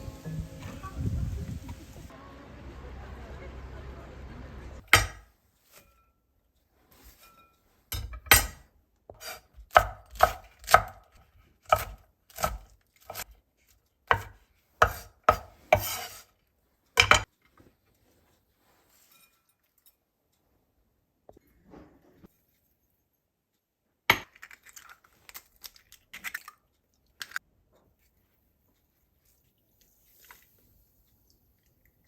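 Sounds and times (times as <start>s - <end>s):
knife chopping on cutting board: 4.9s - 5.2s, 9.2s - 11.0s, 11.7s - 13.2s, 14.1s - 16.2s.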